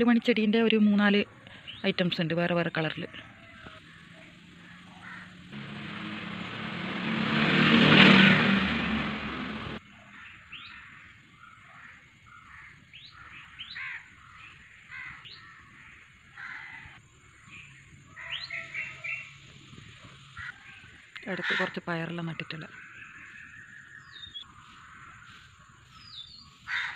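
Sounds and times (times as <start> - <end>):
birds chirping: 0.0 - 26.9
loud rushing noise: 5.2 - 9.8.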